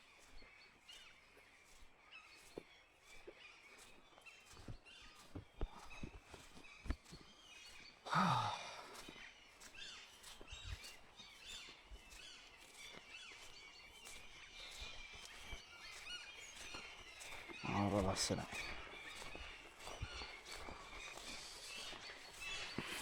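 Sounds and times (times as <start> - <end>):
birds chirping faintly: 0.0 - 23.0
person sighing: 8.1 - 8.9.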